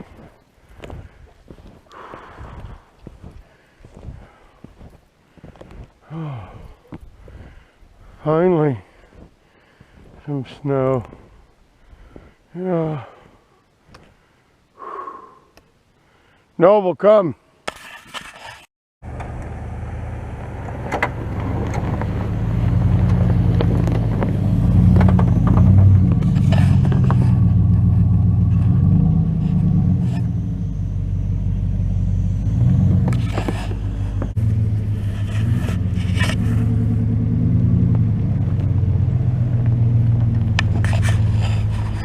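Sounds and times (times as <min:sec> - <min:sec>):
sharp clicks and knocks: 0:39.6 - 0:41.9.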